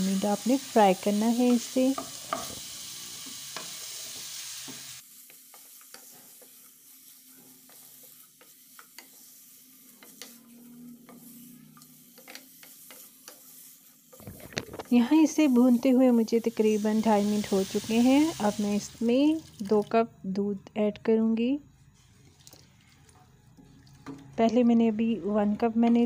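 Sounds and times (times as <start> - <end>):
chicken sizzling in oil: 0.0 - 19.7
spatula scraping pan: 5.4 - 16.1.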